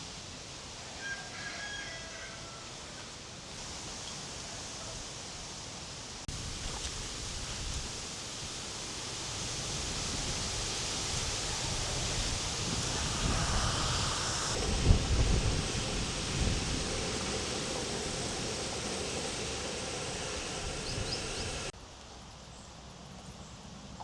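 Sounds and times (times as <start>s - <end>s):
steady rushing noise: 6.2s - 21.7s.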